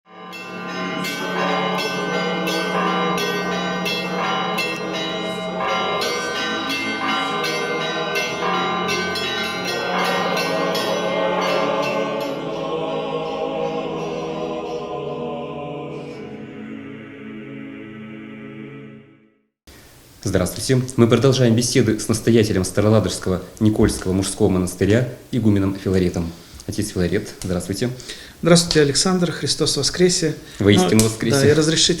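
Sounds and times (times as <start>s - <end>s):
church bells ringing: 0.1s - 15.0s.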